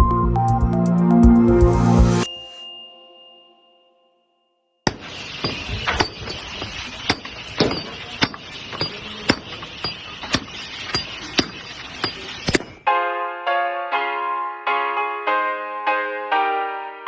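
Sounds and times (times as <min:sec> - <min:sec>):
sharp knocks: 0:04.9 - 0:12.9
keyboard music: 0:12.8 - 0:17.0.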